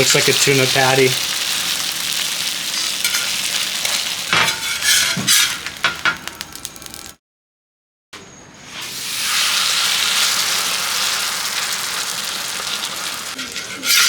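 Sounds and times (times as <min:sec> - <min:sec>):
batter sizzling in oil: 0:00.0 - 0:07.2, 0:08.6 - 0:14.0
spatula scraping a wok: 0:01.4 - 0:06.2, 0:12.5 - 0:14.0.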